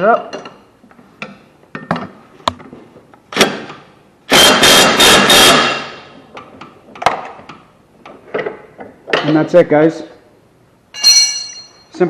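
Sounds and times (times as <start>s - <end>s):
impact wrench hammering: 3.3s - 6.1s.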